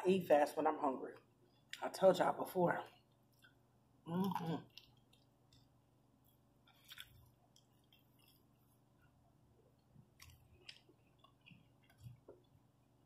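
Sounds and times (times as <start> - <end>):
chewing and mouth smacks: 3.0 - 3.6, 4.2 - 13.0.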